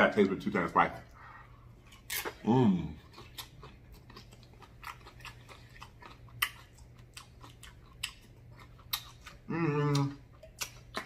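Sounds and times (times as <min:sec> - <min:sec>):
mouth chewing wet smacks: 0:03.0 - 0:11.0.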